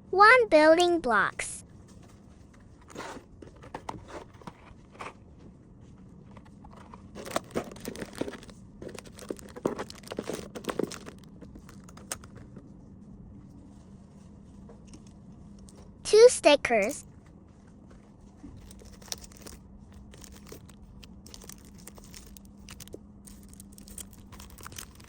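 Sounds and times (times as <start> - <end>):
faint steady hum: 0.0 - 25.0
plastic packaging crinkling: 6.4 - 12.6, 18.6 - 25.0.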